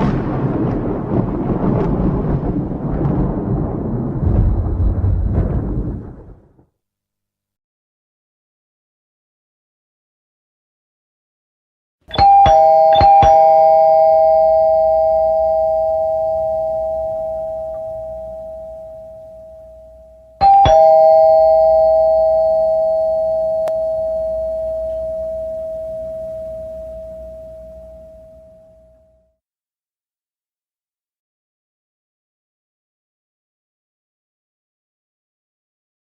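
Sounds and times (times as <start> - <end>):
two-note doorbell chime: 12.1 - 29.3.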